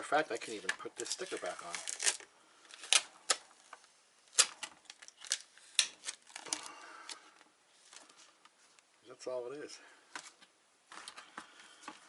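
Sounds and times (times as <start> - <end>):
plastic clicks and crackles: 0.4 - 8.6.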